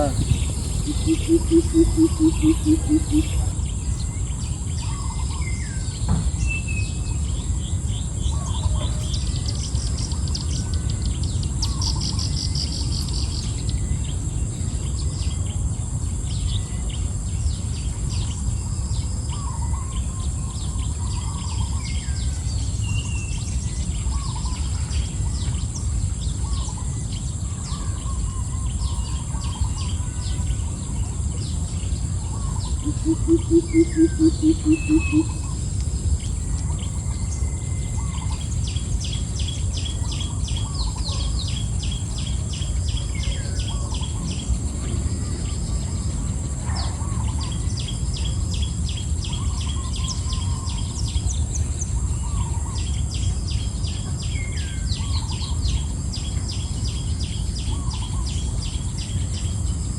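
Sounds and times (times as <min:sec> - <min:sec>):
birds chirping and calling: 0:00.0 - 0:15.7, 0:19.0 - 0:59.9
low rumble: 0:00.0 - 0:21.6.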